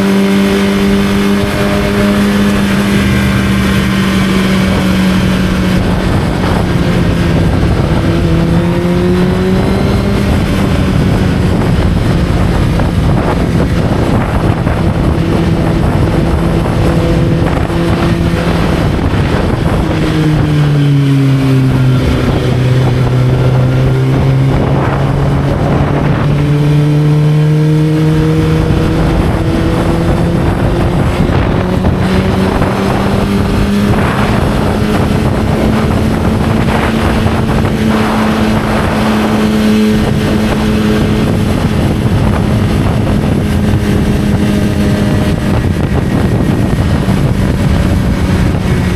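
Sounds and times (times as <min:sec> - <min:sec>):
motorcycle engine running: 0:00.0 - 0:48.9
wind rushing over microphone: 0:00.0 - 0:48.9.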